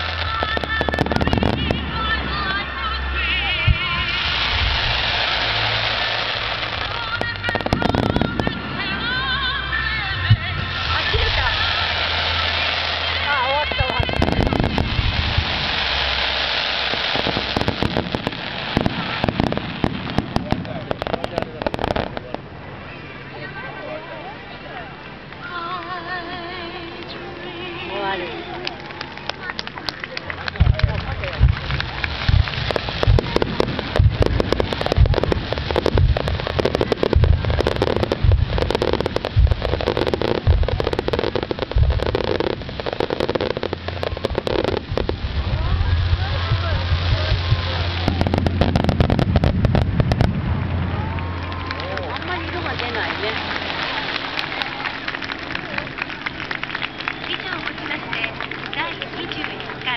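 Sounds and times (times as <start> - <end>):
steady hiss: 0.0 - 51.0, 52.0 - 59.9
fireworks crackling: 0.0 - 59.9.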